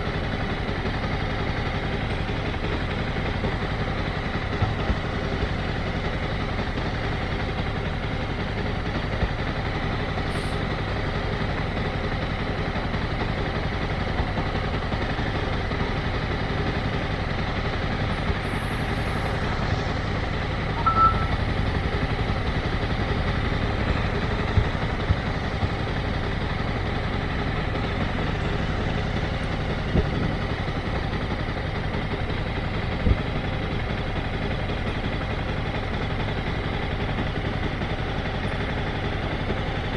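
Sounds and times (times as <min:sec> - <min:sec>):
motorcycle engine running: 0:00.0 - 0:39.9
short high beep: 0:20.8 - 0:21.5.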